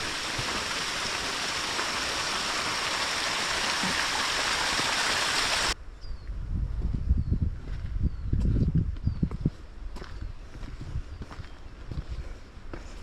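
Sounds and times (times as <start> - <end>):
fast-flowing water rushing: 0.0 - 5.8.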